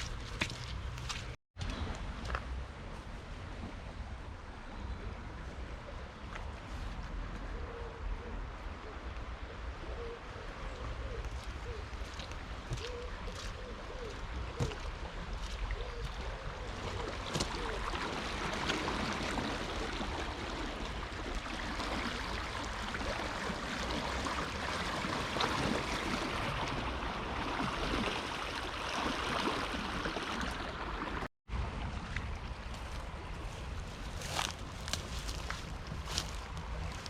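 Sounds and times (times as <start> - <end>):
flooded river rushing: 14.2 - 31.3.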